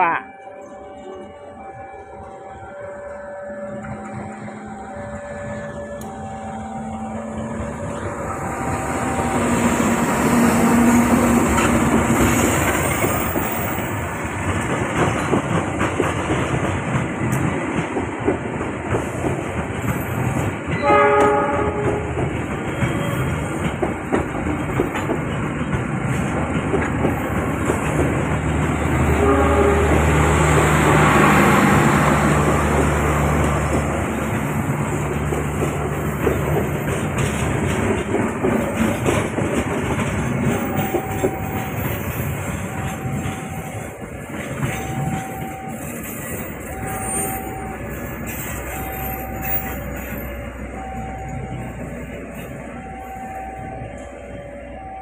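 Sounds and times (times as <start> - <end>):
train wheels clattering: 7.5 - 50.7
train horn blast: 20.8 - 23.2, 29.0 - 32.4.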